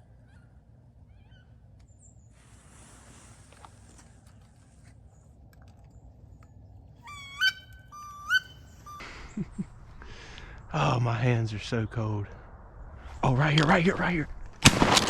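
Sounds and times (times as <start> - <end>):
rustle: 2.2 - 5.5, 13.0 - 15.0
duck squealing calls: 7.0 - 9.4.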